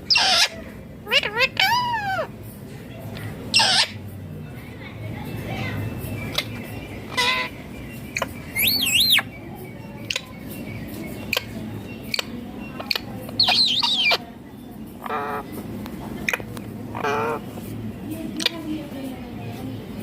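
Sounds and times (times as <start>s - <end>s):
parakeet shrill warbling calls: 0.0s - 2.3s, 3.5s - 4.0s, 7.1s - 9.3s, 11.3s - 14.3s, 16.9s - 17.4s.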